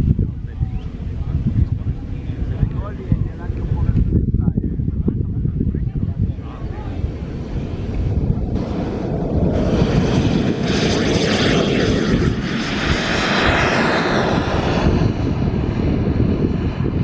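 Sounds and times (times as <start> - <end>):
jet turbine rushing: 0.0 - 17.0.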